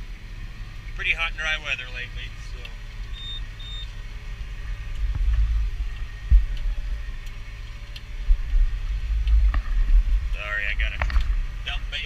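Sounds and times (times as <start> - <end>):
tractor rumbling: 0.0 - 12.0
short high beeps: 3.1 - 3.9.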